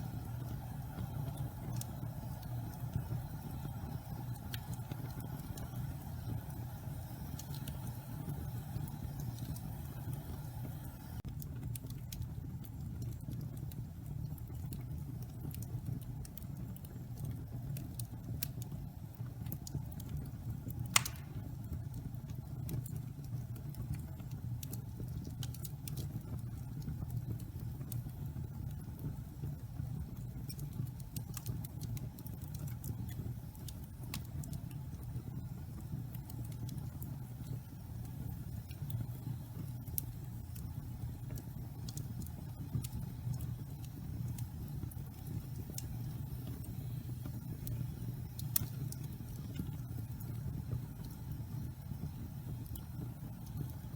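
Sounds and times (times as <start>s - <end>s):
fire crackles: 0.0s - 53.9s
fire rumbling in fireplace: 0.0s - 53.9s
loud pop from fire: 20.9s - 21.5s.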